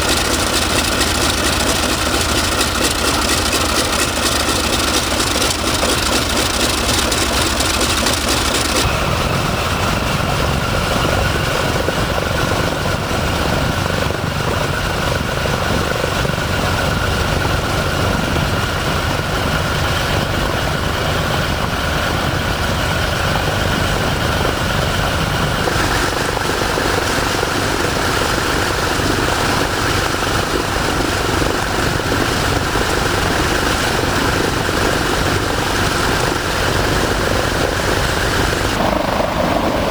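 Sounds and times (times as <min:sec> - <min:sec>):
radial piston engines running: 0:00.0 - 0:10.0, 0:25.0 - 0:39.2.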